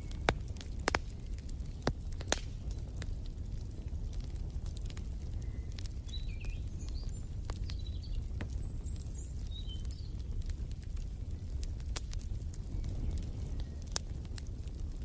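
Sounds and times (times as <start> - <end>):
fireplace fire crackling: 0.0 - 15.0
small birds chirping: 5.2 - 10.6.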